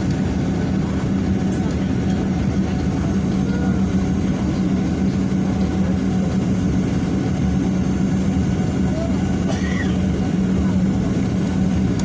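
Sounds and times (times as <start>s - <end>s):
jet engines droning: 0.0s - 12.0s.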